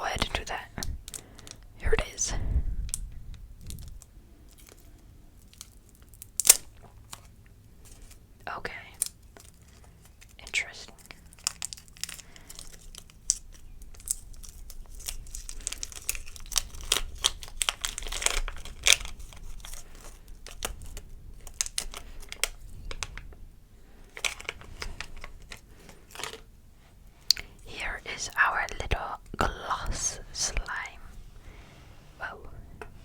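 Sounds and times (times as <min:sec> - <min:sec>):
plastic packaging crinkling: 0:00.1 - 0:31.0.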